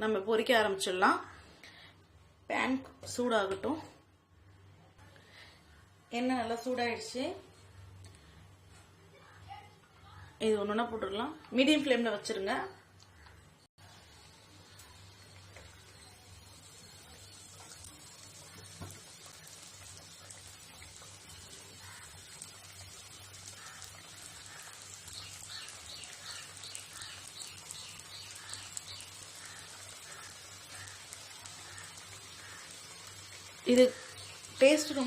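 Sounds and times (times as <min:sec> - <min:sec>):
chicken deep-frying in oil: 0:11.0 - 0:35.0.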